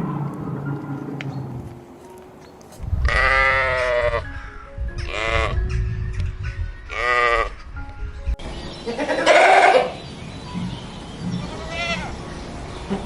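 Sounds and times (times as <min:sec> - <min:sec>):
sheep or goats bleating: 0:03.1 - 0:04.3, 0:08.9 - 0:10.0.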